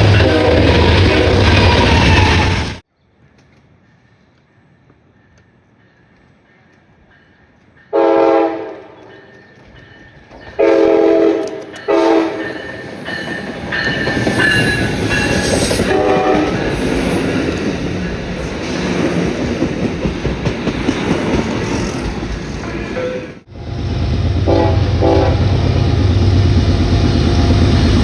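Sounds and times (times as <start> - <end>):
train horn blasts: 0.0 - 1.8, 7.9 - 9.4, 10.6 - 12.7, 15.8 - 16.8, 23.0 - 27.6
train wheels clacking on rails: 4.9 - 28.0.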